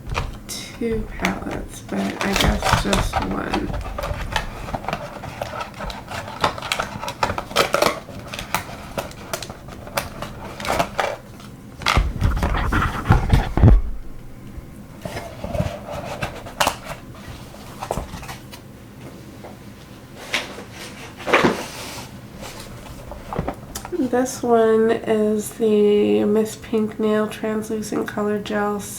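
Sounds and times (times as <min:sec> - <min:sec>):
heavy knocking and rubbing: 0:00.0 - 0:11.2, 0:11.9 - 0:18.2
plastic items clicking and clattering: 0:00.0 - 0:18.4.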